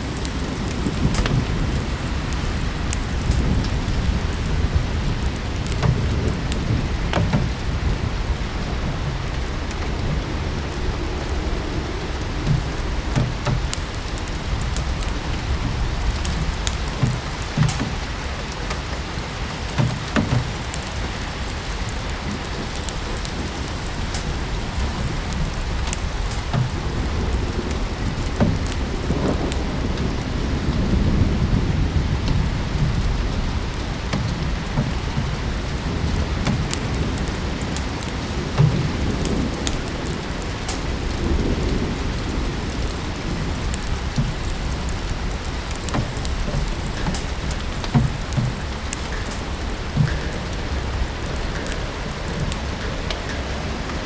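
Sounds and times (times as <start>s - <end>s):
low rumbling: 0.0s - 54.0s
steady rain: 0.0s - 54.0s
wood fire crackling: 0.0s - 54.0s.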